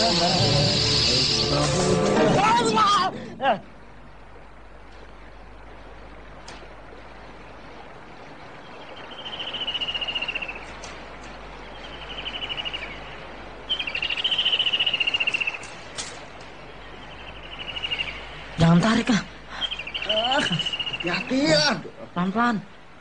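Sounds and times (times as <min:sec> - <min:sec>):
steady hiss: 0:00.0 - 0:23.0
bird trilling: 0:08.9 - 0:10.8, 0:11.7 - 0:15.8, 0:16.8 - 0:18.4, 0:19.5 - 0:21.7.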